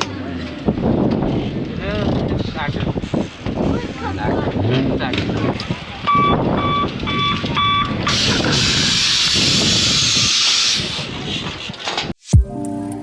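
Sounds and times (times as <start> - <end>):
music: 12.3 - 13.0.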